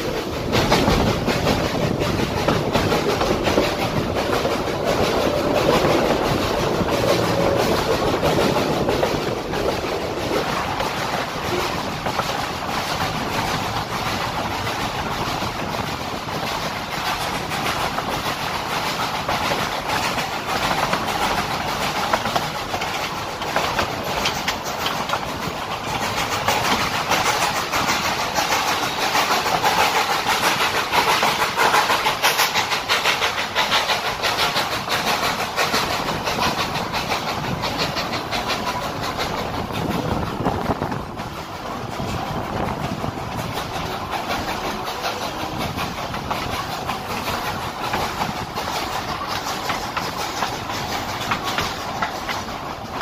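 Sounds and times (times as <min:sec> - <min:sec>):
train wheels clattering on rails: 0:00.0 - 0:53.0.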